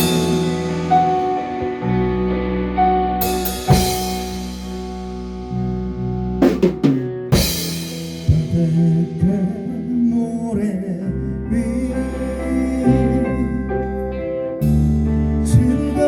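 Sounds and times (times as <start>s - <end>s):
drum kit fill: 0.0s - 9.5s
live rock band playing: 0.0s - 9.8s.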